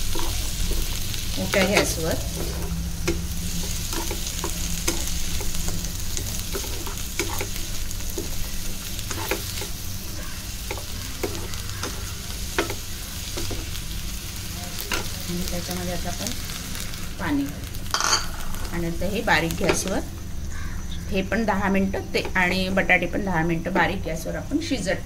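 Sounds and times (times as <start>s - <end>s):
spatula scraping and tapping pan: 0.0s - 13.8s
vegetables sizzling in oil: 0.0s - 25.0s.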